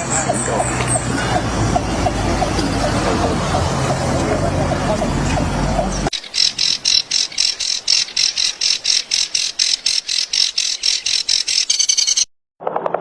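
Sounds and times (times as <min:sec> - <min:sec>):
bird repeating high sharp call: 0:06.1 - 0:12.3.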